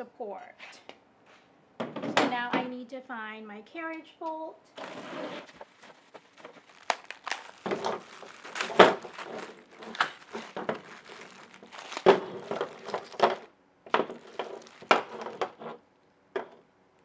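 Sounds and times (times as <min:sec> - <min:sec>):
packaging crinkling and rustling: 0:04.8 - 0:15.8.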